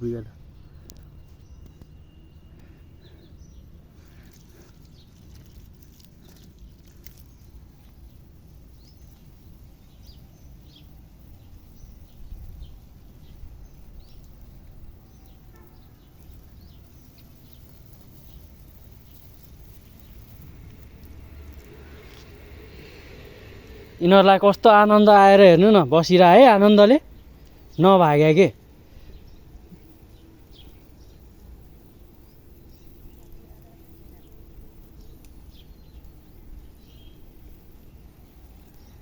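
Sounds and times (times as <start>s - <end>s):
small birds chirping: 0.0s - 39.0s
low outdoor rumble: 19.6s - 24.7s.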